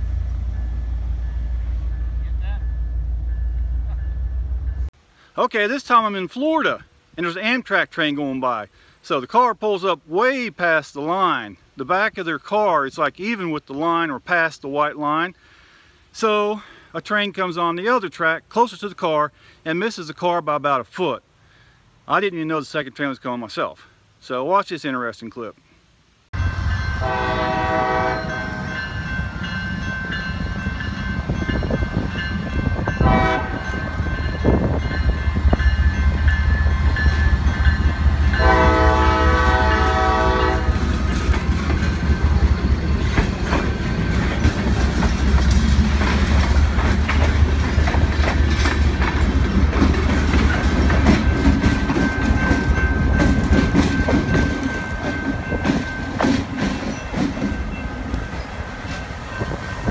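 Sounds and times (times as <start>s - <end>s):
train engine rumble: 0.0s - 5.5s, 26.4s - 59.9s
locomotive air horn: 27.0s - 28.7s, 33.0s - 34.0s, 38.3s - 40.9s
wheels clicking over rail joints: 40.7s - 59.9s.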